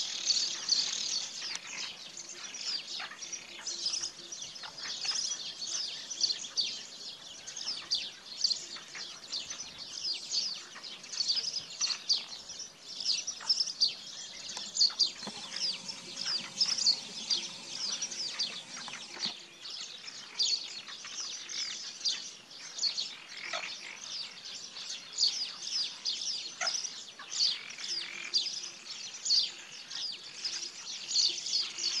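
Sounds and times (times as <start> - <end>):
chorus of small birds chirping: 0.0 - 32.0.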